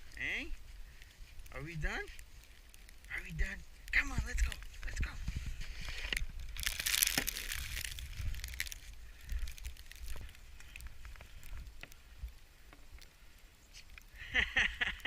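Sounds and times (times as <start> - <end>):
snow crunching: 0.0 - 12.2
wind rumble on microphone: 3.3 - 12.4.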